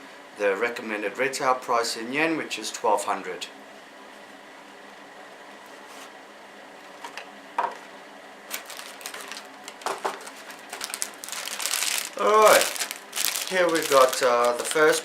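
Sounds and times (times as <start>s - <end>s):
plastic bags rustling: 8.5s - 15.0s.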